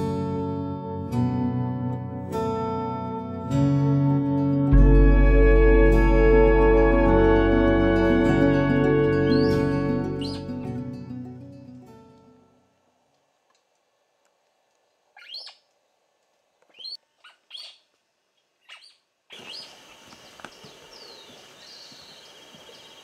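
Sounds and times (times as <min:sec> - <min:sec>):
background music: 0:00.0 - 0:12.3
steady high trill: 0:04.7 - 0:10.7
wild birds calling: 0:09.2 - 0:10.5, 0:15.2 - 0:15.7, 0:16.7 - 0:17.9, 0:18.6 - 0:23.0.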